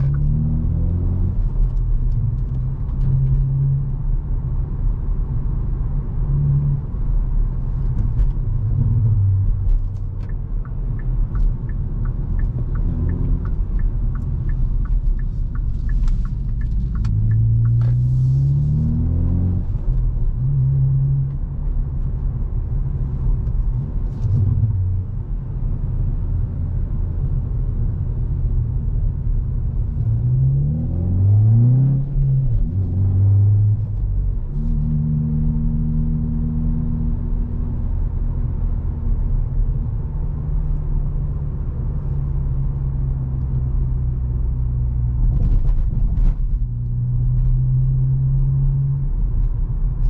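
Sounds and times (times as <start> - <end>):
car engine accelerating: 0.0 - 25.2, 28.7 - 50.0.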